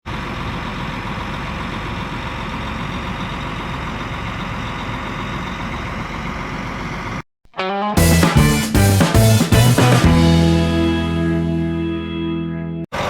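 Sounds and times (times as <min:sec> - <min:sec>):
tractor engine running: 0:00.0 - 0:07.2, 0:08.0 - 0:10.8.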